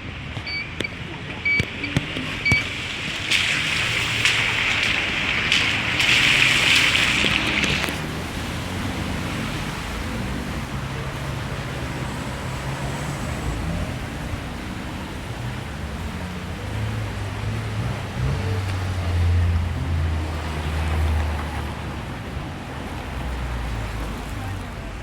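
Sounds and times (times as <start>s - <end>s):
road traffic hiss: 0.0s - 25.0s.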